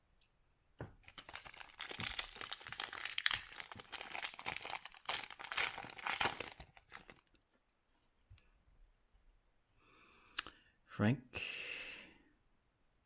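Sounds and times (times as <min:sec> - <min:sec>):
wrapper and cards rustling: 0:01.0 - 0:07.3.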